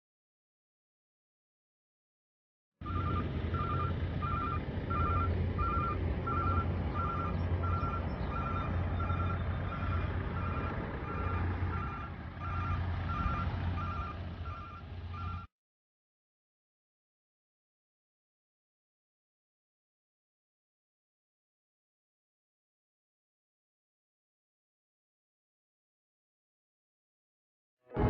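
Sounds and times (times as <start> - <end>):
heavy engine idling: 2.8 - 15.5
vehicle reversing alarm beeping: 2.8 - 15.5.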